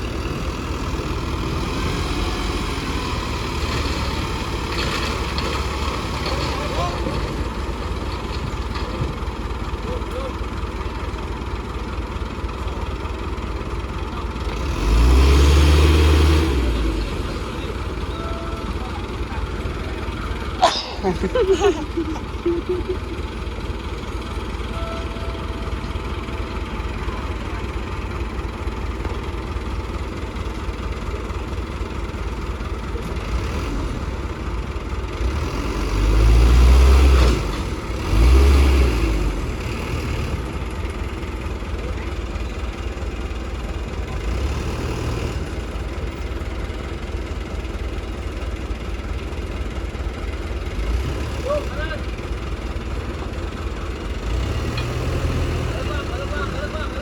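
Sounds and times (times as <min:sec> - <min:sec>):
loud low engine revs: 0:00.0 - 0:08.0, 0:14.4 - 0:23.0, 0:33.0 - 0:41.7, 0:43.1 - 0:46.1, 0:50.4 - 0:57.0
diesel earthmoving machinery running: 0:00.0 - 0:57.0.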